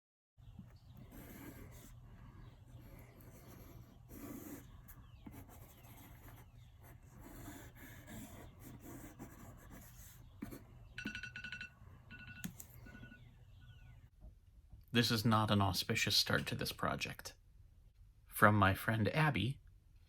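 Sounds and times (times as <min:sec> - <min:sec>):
pencil scratching on paper: 0:00.6 - 0:10.8.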